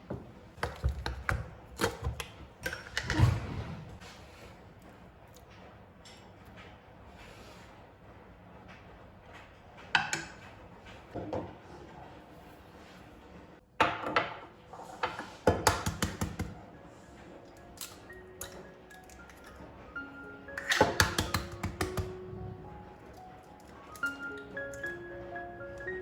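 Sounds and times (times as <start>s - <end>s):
household items knocking: 20.6s - 22.3s.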